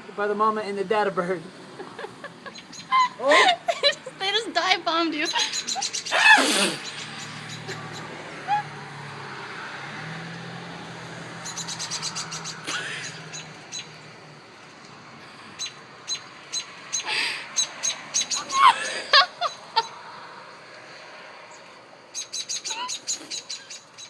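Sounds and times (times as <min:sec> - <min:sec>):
sharp bird chirps: 0:06.8 - 0:08.1, 0:11.4 - 0:14.0, 0:21.5 - 0:24.0.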